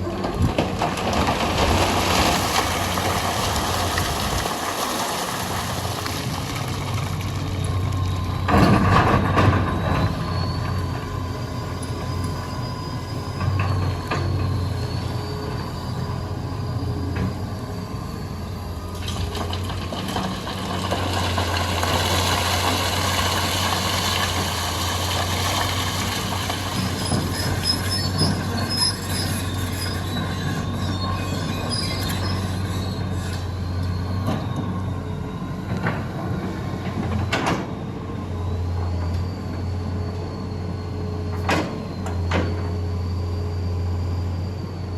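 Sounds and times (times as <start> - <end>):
excavator diesel engine running: 0.0 - 44.9
short high squeaks: 26.8 - 34.6.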